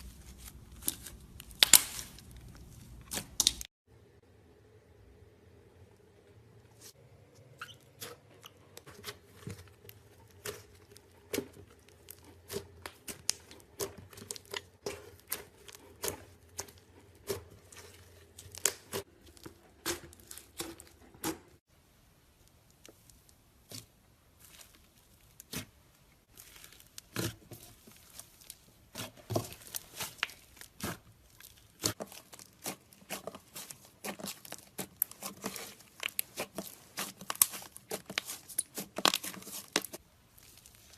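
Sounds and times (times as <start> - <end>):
slime popping and crackling: 0.3 - 3.7, 23.0 - 40.9.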